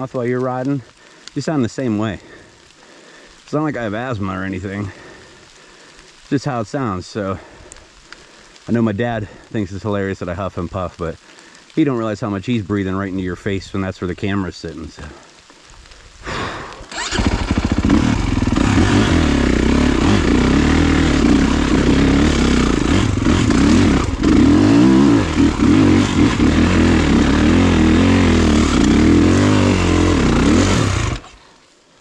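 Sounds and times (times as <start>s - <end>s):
dirt bike engine revving: 16.9s - 31.4s.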